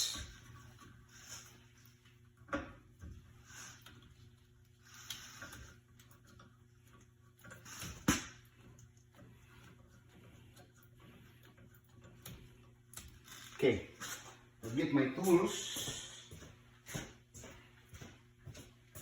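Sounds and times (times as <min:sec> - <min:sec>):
soft rustling and ticks: 0:08.5 - 0:19.0.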